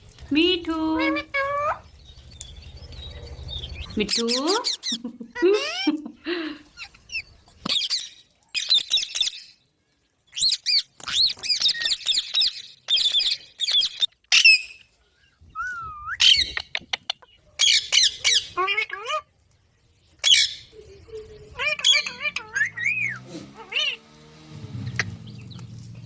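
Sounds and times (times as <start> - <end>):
parrots squawking and chirping: 0.8 - 6.0, 6.6 - 9.6, 10.3 - 14.8, 16.2 - 19.3, 20.2 - 24.0.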